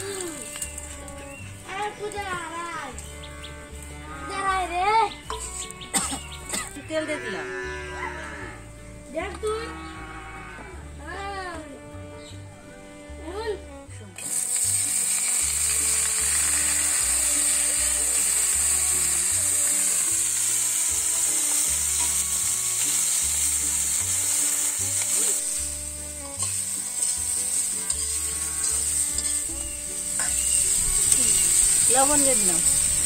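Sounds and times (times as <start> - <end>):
food sizzling in a wok: 0.0 - 1.6, 14.2 - 33.0
metal spatula scraping: 5.2 - 5.8, 14.2 - 33.0.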